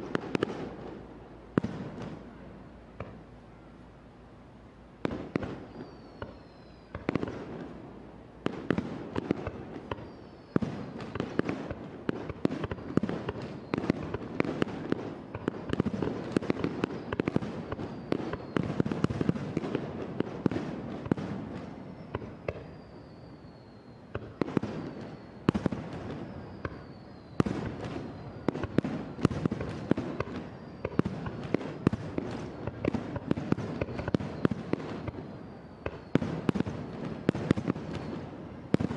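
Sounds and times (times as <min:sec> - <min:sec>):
fireworks bursting and crackling: 0:00.0 - 0:03.3, 0:05.0 - 0:38.9
falling whistles: 0:05.5 - 0:07.4, 0:09.2 - 0:11.4, 0:12.7 - 0:14.2, 0:16.2 - 0:19.4, 0:21.5 - 0:38.9.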